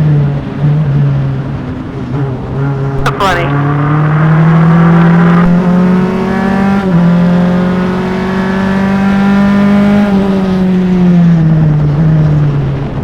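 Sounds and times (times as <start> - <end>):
race car engine revving: 1.6 - 11.1.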